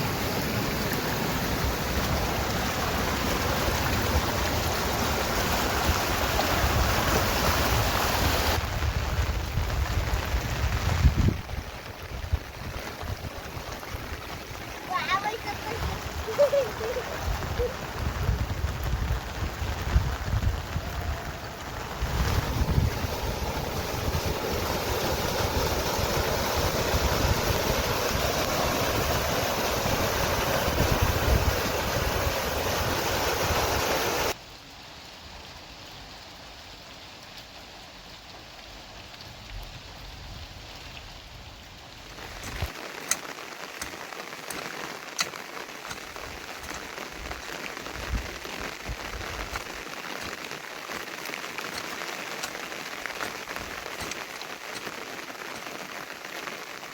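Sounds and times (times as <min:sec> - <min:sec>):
steady rain falling: 0:00.0 - 0:56.9
raindrops clicking: 0:08.6 - 0:31.4, 0:42.0 - 0:56.9.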